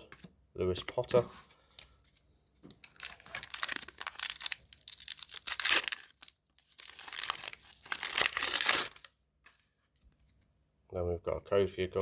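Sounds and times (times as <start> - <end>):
wrapper tearing and crinkling: 2.8 - 9.1.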